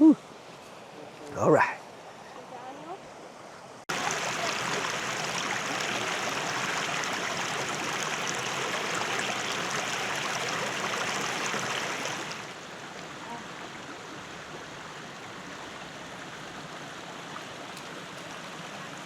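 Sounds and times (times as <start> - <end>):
water rushing over rocks: 3.9 - 13.2.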